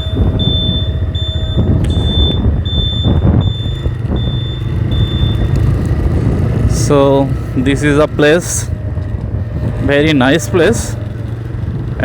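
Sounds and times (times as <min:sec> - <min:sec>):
high electronic beep: 0:00.0 - 0:05.5
motorcycle engine rumble: 0:00.0 - 0:12.0
road and wind noise: 0:00.0 - 0:12.0.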